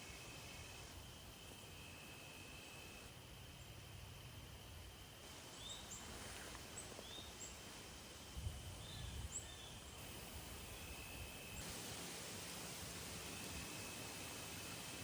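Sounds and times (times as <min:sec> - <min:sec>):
steady background hiss: 0:00.0 - 0:15.0
bird chirps: 0:05.5 - 0:06.2.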